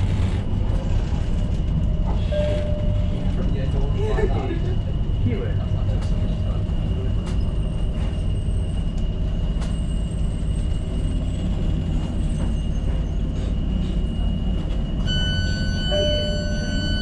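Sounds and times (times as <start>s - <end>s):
train wheels rumbling on rails: 0.0s - 17.0s
steady high tone: 14.2s - 17.0s.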